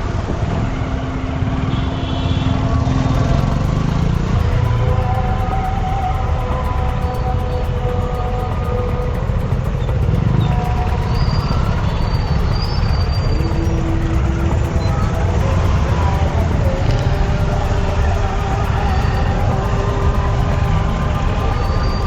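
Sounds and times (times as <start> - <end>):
long held tones: 0.0 - 22.0
motorcycle rumbling: 0.0 - 22.0.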